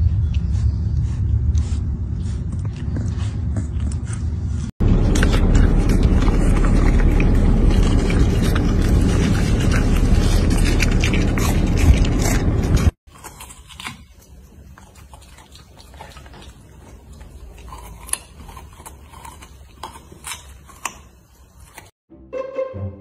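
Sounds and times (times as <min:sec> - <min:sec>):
puppy crunching a carrot: 0:00.2 - 0:21.9
musical notes: 0:22.1 - 0:23.0.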